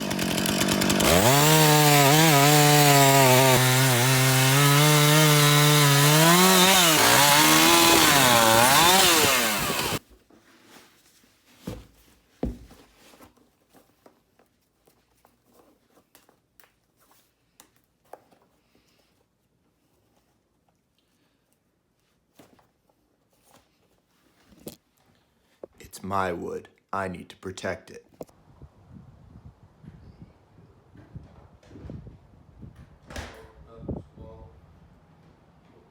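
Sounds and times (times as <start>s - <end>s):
chainsaw cutting wood: 0.0s - 10.0s.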